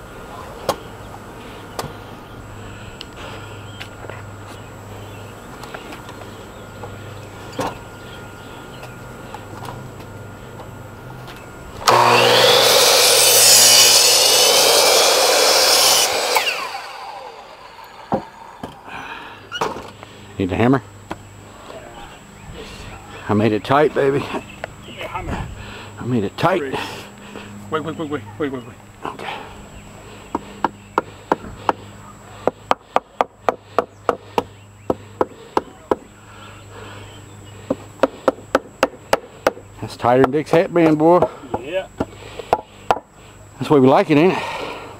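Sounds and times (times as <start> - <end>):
motor winding down whine: 11.7 - 19.1
power tool cutting: 11.8 - 18.9.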